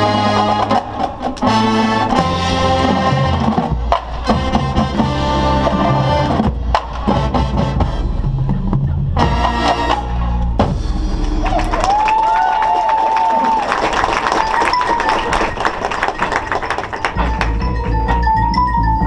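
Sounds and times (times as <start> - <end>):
wind chords: 0.0 - 12.1
drums and percussion hits: 0.0 - 12.4, 14.3 - 19.0.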